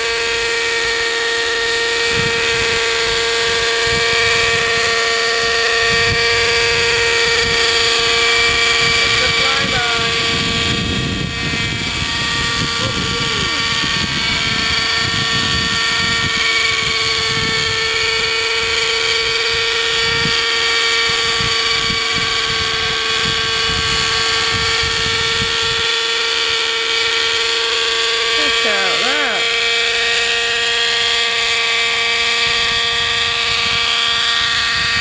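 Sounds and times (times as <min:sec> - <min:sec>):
model helicopter engine whine: 0:00.0 - 0:35.0
low gusty rumble: 0:02.0 - 0:25.9.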